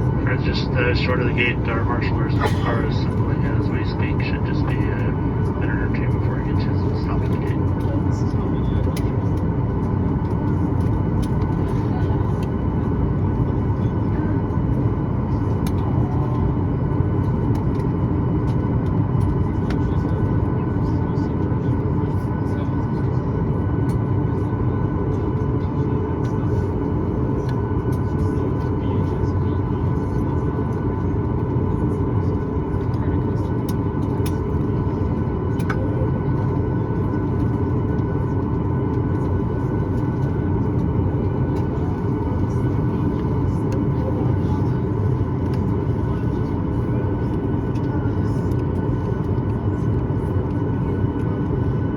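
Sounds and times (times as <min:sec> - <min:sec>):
thin steady whine: 0:00.0 - 0:20.1
aircraft cabin engine rumble: 0:00.0 - 0:51.9.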